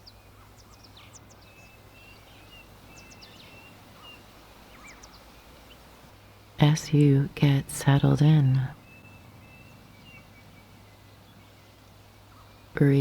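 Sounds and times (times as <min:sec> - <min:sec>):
birds chirping and whistling: 0:00.0 - 0:05.8, 0:08.8 - 0:12.7
low steady hum: 0:00.0 - 0:13.0.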